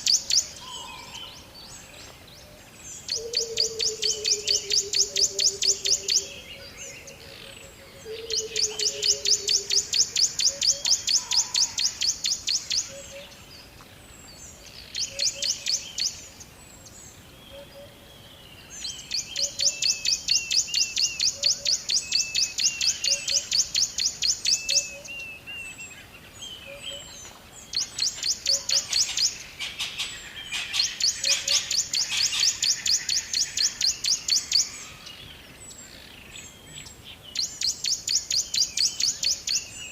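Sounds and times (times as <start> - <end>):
bird chirps: 0.0 - 13.5, 14.3 - 18.0, 18.6 - 39.9.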